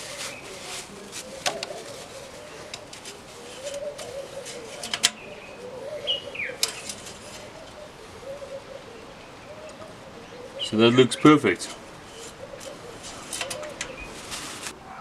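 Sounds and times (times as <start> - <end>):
bird chirp: 0.0 - 15.0
doves cooing: 0.0 - 15.0.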